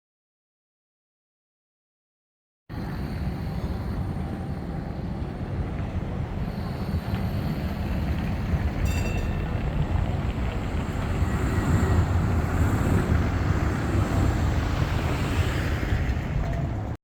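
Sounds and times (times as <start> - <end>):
tram rumbling on track: 2.7 - 17.0
brief high ringing tone: 8.8 - 9.6.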